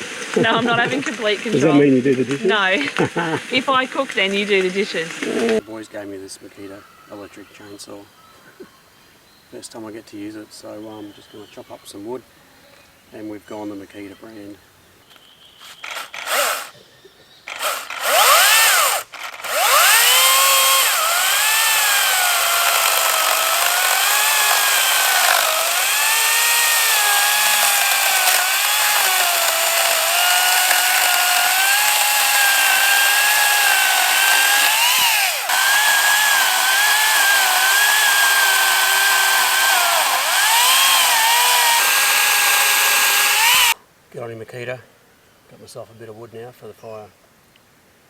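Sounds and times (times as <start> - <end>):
electric chainsaw cutting wood: 5.1 - 5.6, 15.6 - 16.7, 17.5 - 43.8.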